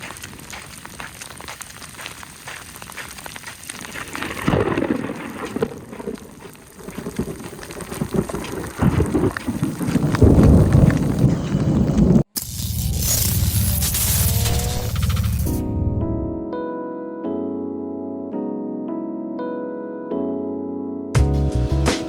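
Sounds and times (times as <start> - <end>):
rain pattering: 0.0 - 12.3
rolling thunder: 4.2 - 12.3.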